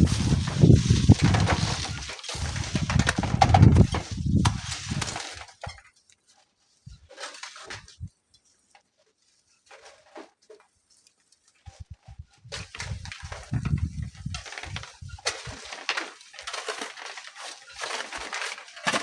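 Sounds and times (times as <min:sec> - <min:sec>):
wind buffeting microphone: 0:00.0 - 0:05.2, 0:11.7 - 0:15.6
gritty scrapes and clinks: 0:00.0 - 0:06.2, 0:12.6 - 0:19.0.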